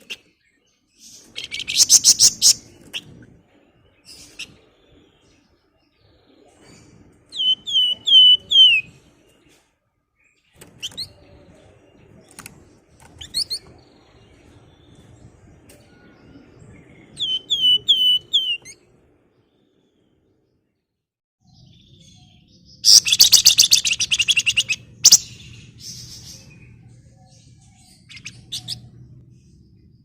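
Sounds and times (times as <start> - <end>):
songbird whistling downward: 7.3 - 8.9, 17.2 - 18.8.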